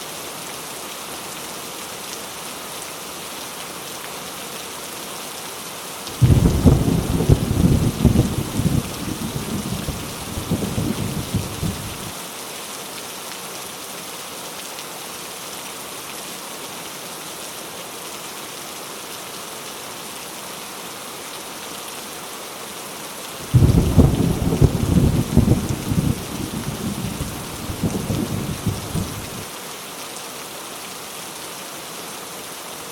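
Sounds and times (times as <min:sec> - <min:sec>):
heavy rain hissing: 0:06.1 - 0:12.2, 0:23.2 - 0:30.0
rolling thunder: 0:06.2 - 0:12.1, 0:23.4 - 0:29.4.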